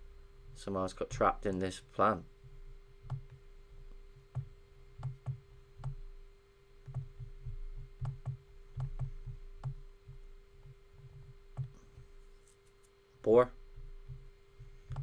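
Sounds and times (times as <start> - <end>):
faint steady hum: 0.0 - 15.0
computer mouse clicking: 3.0 - 3.4, 4.3 - 6.0, 6.8 - 11.8, 14.1 - 15.0.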